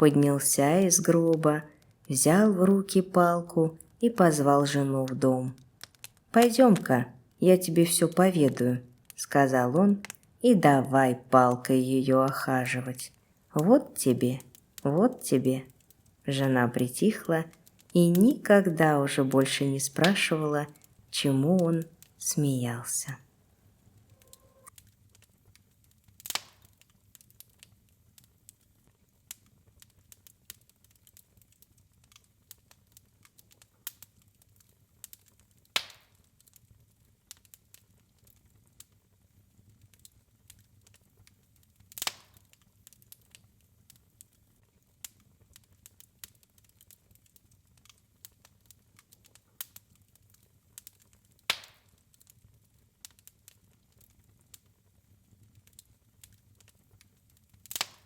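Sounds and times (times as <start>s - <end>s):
wood fire crackling: 0.0s - 58.0s
fire pops: 5.1s - 7.3s, 8.5s - 9.2s, 10.0s - 10.4s, 24.0s - 54.8s, 55.5s - 58.0s.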